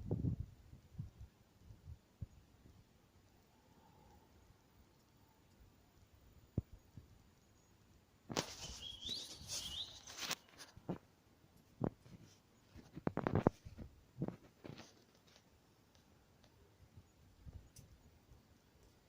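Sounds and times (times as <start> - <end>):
rustling: 8.3 - 16.5
rising bird chirps: 8.4 - 10.5.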